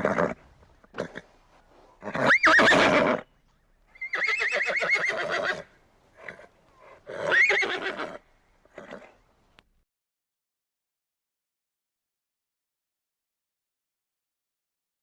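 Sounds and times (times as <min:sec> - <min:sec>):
horse neighing: 0:00.0 - 0:01.3, 0:02.0 - 0:03.3, 0:04.0 - 0:09.2.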